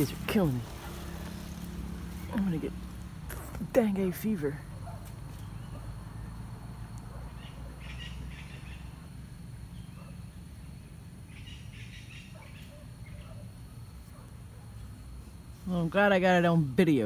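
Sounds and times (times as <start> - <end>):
low outdoor rumble: 0.0 - 17.0
birds chirping: 3.6 - 13.6.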